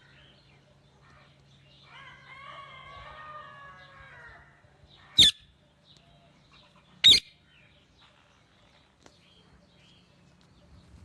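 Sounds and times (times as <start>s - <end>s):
parrot calling and shrieking: 5.1s - 5.5s, 6.7s - 7.4s.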